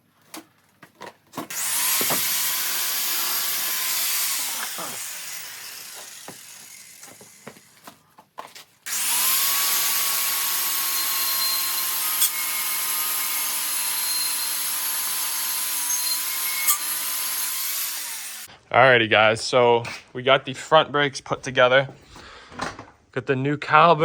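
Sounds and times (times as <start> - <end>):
power sander whining: 1.5 - 7.8, 8.9 - 18.5.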